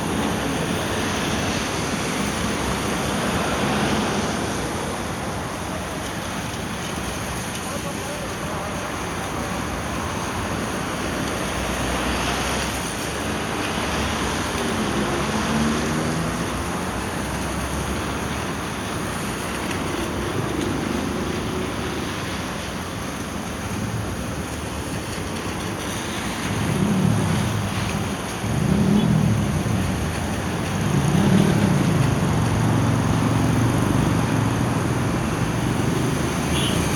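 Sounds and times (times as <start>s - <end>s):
passing vehicle engines: 0.0s - 36.9s
tyres on wet pavement: 0.0s - 36.9s.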